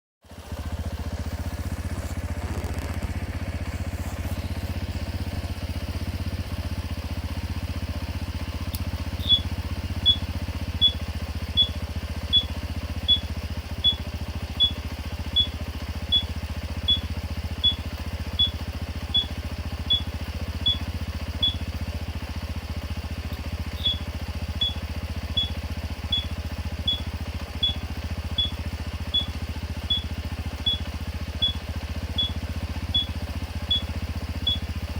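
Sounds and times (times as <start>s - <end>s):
small motorcycle engine idling: 0.2s - 34.9s
turn-signal buzzer beeping: 9.2s - 21.7s, 23.6s - 34.7s.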